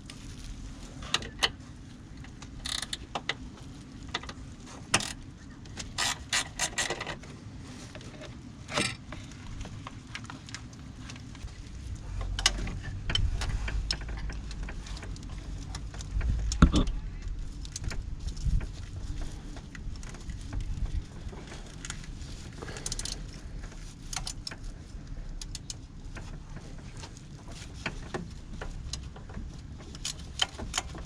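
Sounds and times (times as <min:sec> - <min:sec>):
low rumble: 0:07.4 - 0:24.1.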